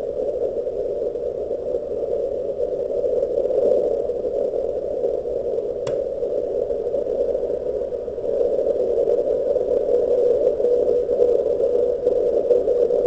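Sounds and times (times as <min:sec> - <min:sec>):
sharp click: 0:05.9 - 0:06.1.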